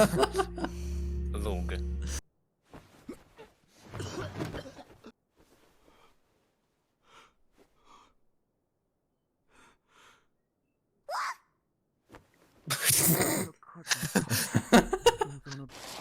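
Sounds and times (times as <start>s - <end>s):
person breathing: 0.6s - 1.3s, 7.0s - 8.2s, 9.5s - 10.3s.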